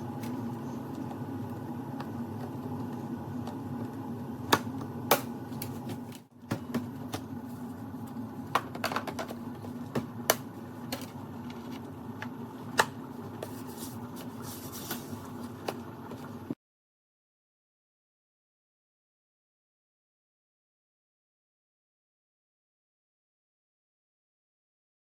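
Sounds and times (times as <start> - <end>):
mechanical hum: 0.0 - 16.6.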